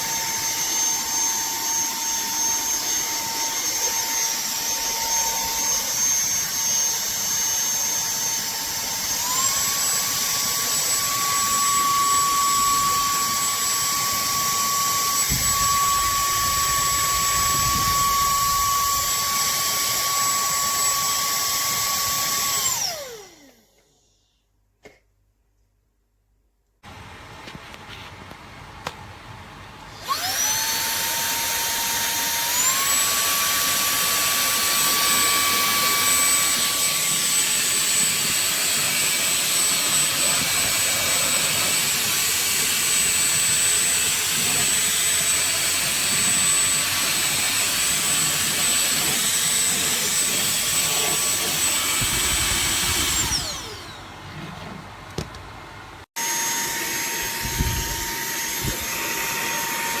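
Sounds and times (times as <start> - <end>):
handheld vacuum cleaner motor whine: 0.0 - 24.3, 29.9 - 54.4, 56.2 - 60.0.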